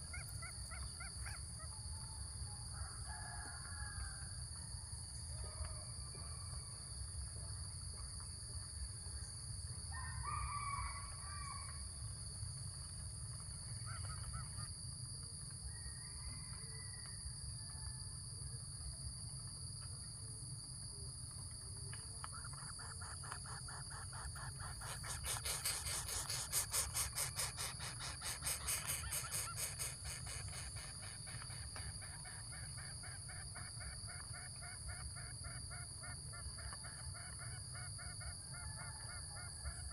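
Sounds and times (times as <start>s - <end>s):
bird calls: 22.3s - 35.8s
rapid harsh pulsed bird calls: 22.5s - 31.7s.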